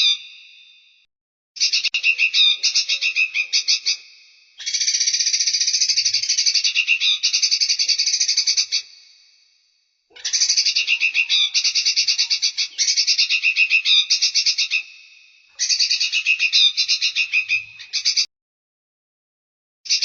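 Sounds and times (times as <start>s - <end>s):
songbird chattering trill: 1.6s - 8.9s, 10.2s - 14.9s, 15.6s - 18.3s.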